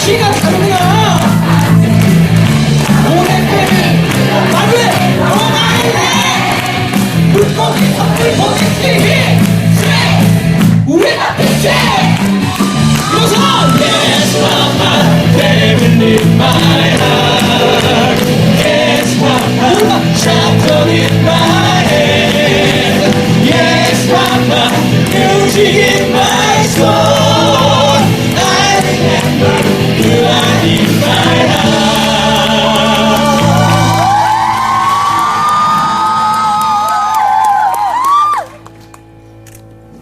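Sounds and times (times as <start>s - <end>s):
instrumental accompaniment: 0.0s - 10.9s, 11.5s - 34.4s
voices singing in harmony: 2.8s - 10.4s, 13.1s - 34.4s.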